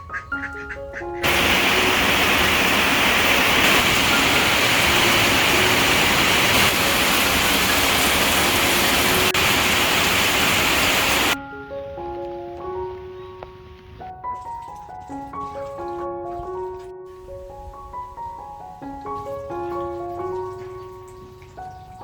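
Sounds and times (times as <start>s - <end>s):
soft background music: 0.0s - 1.3s, 11.4s - 22.0s
heavy rain: 1.2s - 11.4s.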